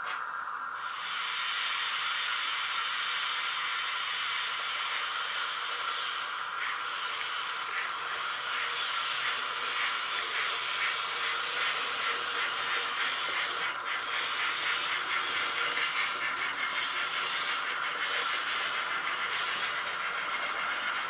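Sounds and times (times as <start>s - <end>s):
model train running: 0.0s - 21.0s
fast regular clicking: 5.3s - 21.0s.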